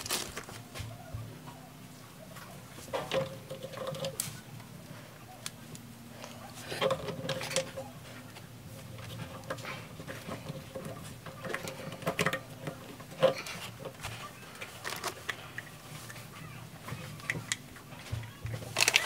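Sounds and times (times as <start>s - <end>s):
faint steady hum: 0.0s - 19.0s
plastic pipe fittings clicking: 9.4s - 14.0s.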